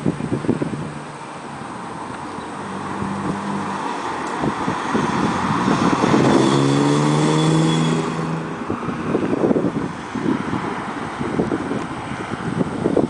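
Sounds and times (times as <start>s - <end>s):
car engine revving: 0.4s - 9.9s.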